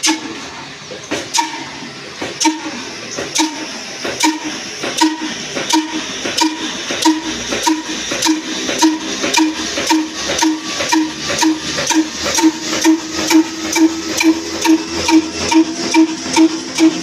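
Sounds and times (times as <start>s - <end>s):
diesel engine running: 0.0s - 17.0s
metallic ring: 4.3s - 17.0s.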